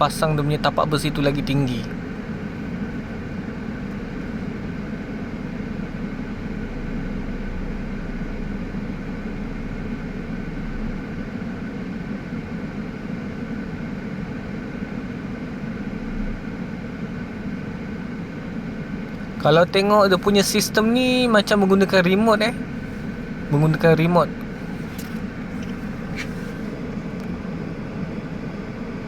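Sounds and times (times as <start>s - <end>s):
faint steady tones: 0.0s - 29.0s
heavy engine idling: 0.0s - 29.0s.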